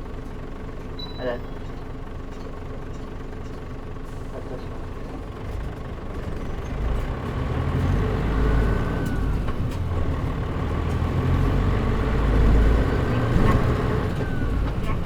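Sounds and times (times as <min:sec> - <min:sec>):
bus diesel engine accelerating: 0:00.0 - 0:15.0.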